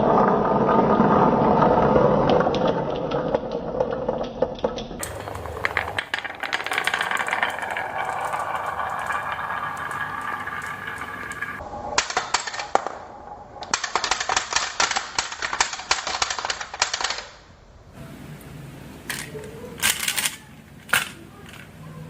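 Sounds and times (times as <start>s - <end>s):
marbles rolling down wooden track: 0.0s - 17.4s.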